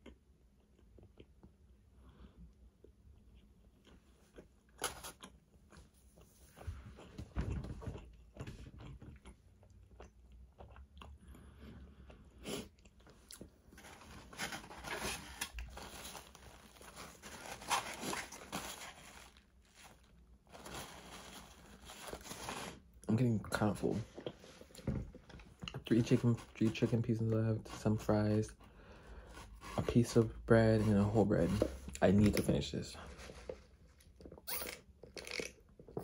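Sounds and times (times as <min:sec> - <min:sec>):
crunching and chewing food: 0:00.0 - 0:23.1, 0:33.2 - 0:36.0.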